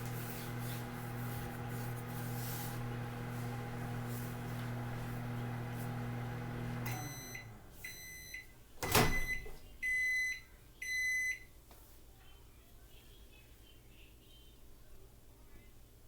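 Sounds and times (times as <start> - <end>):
microwave oven humming: 0.0 - 11.5.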